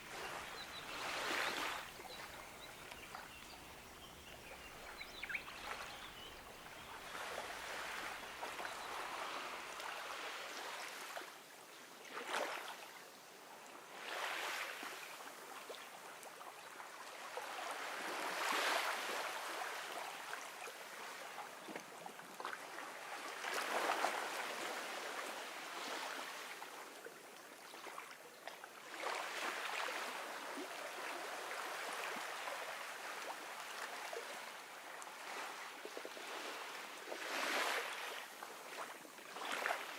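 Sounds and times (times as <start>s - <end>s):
ocean waves washing onto beach: 0.0s - 11.2s.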